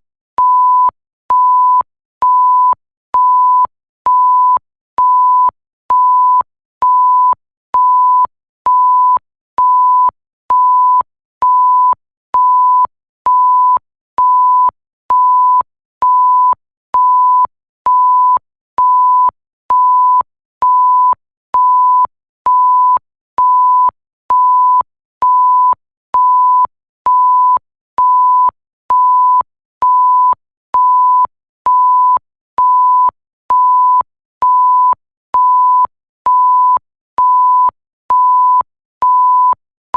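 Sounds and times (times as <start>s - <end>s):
censor bleep tone: 0.4s - 39.6s.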